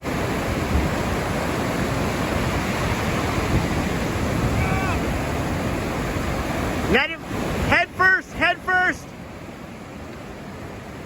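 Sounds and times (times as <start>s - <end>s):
wind buffeting microphone: 0.0s - 7.7s
surf washing onto beach: 0.0s - 11.0s.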